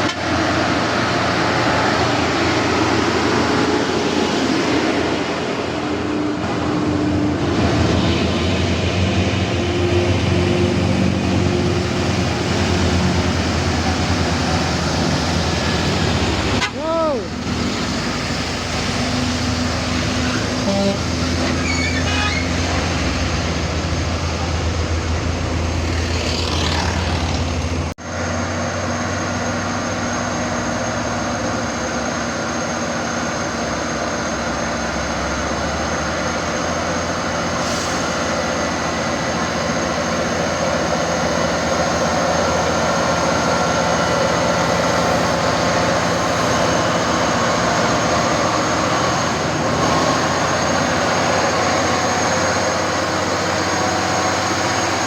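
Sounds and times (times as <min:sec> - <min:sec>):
heavy truck engines running: 0:00.0 - 0:55.0.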